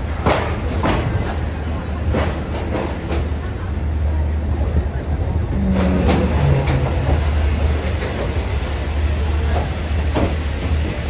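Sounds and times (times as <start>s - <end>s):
train rumbling on tracks: 0.0s - 11.0s
wheels clacking over rails: 5.4s - 11.0s.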